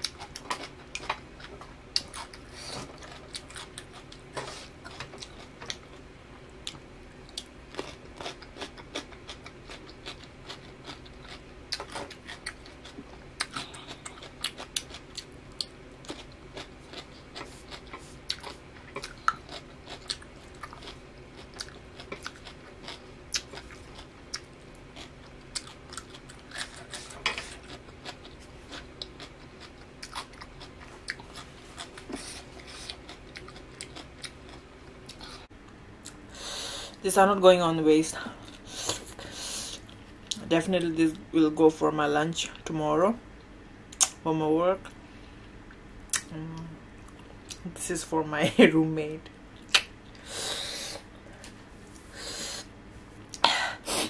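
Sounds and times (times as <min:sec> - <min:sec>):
faint steady hum: 0:00.0 - 0:54.0
wet mouth clicks: 0:49.7 - 0:49.9.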